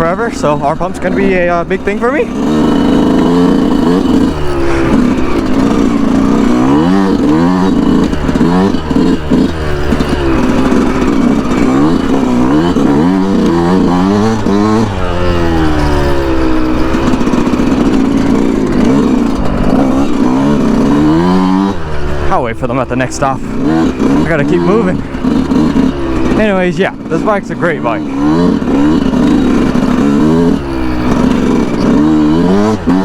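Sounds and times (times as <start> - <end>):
two-stroke motorcycle engine revving: 0.0 - 33.0.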